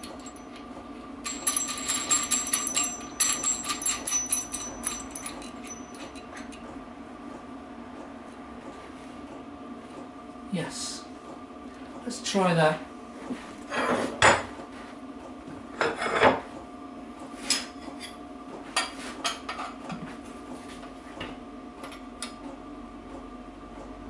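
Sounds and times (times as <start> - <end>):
metal tools clinking and scraping: 0.0 - 6.6.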